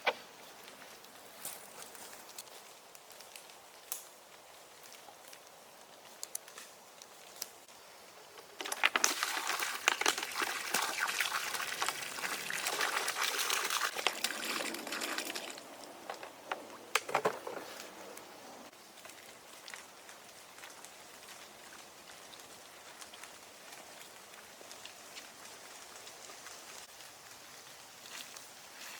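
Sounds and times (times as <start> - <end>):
liquid pouring and splashing: 8.6 - 16.5.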